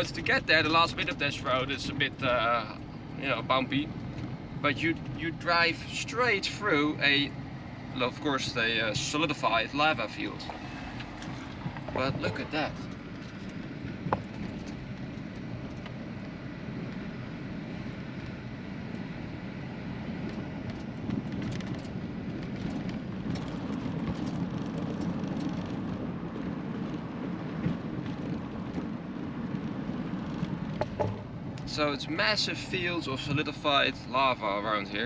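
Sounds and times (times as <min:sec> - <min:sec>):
car driving on bumpy road: 0:00.0 - 0:35.0
knocks: 0:30.8 - 0:31.3.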